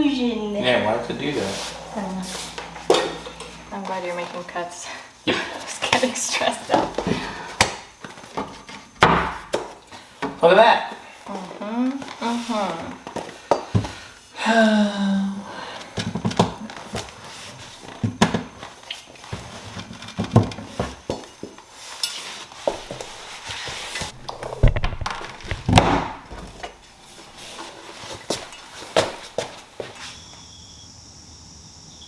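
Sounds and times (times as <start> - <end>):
steady high chirring: 0.0 - 8.0.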